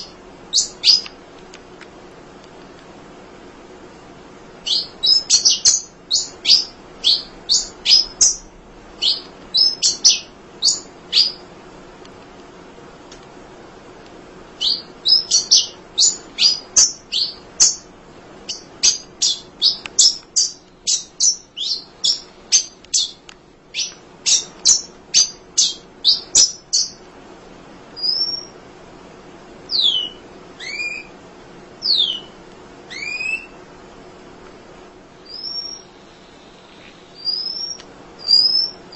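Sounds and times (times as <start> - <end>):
small bird chirping: 0.0 - 1.2, 4.6 - 11.5, 14.6 - 27.0, 28.0 - 28.6, 29.7 - 31.2, 31.8 - 33.6, 35.2 - 38.9.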